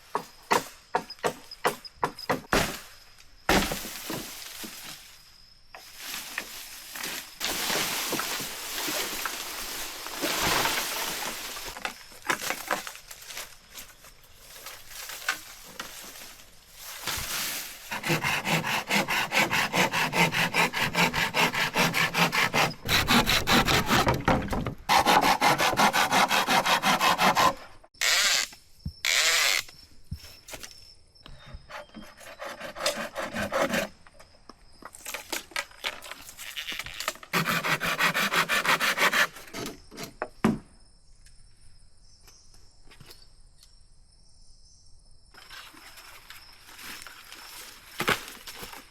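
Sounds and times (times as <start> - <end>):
hand saw cutting bamboo: 17.8 - 28.5, 31.7 - 33.9, 37.3 - 40.2.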